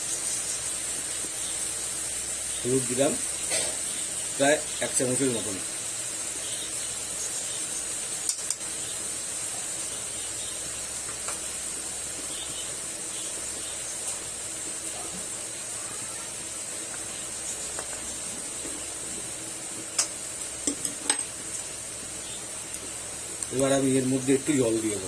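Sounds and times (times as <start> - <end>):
vegetables sizzling in a pan: 0.0 - 25.0.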